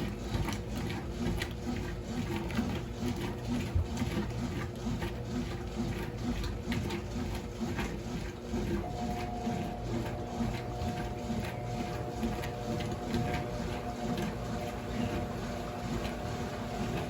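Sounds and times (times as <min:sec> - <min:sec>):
washing machine churning: 0:00.0 - 0:17.0
low motor hum: 0:08.6 - 0:17.0.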